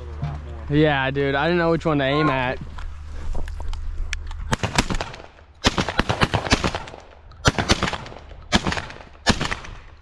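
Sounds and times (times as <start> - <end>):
gunshots: 4.5 - 10.0.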